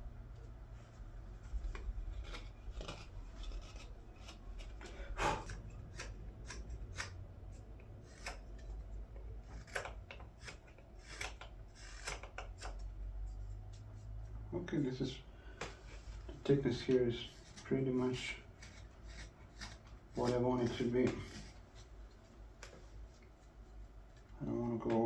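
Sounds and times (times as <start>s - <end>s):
knife shaving green wood: 0.8s - 14.4s, 15.9s - 22.1s.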